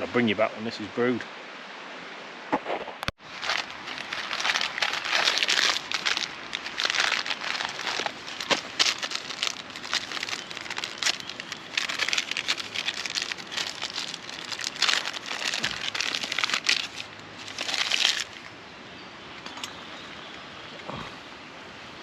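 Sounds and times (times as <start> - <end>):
wood fire crackling: 3.3 - 18.4.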